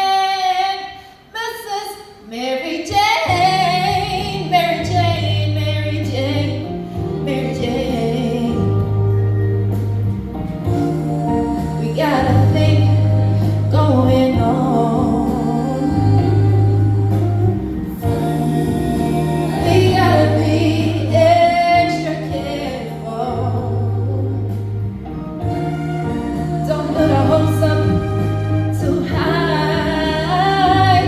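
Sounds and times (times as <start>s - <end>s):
live band playing soul ballad: 3.3s - 31.0s
wordless singing: 10.7s - 31.0s.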